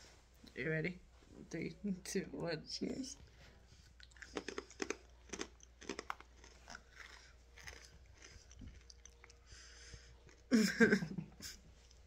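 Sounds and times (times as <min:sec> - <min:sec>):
cat treats being crunched: 0:04.2 - 0:09.0.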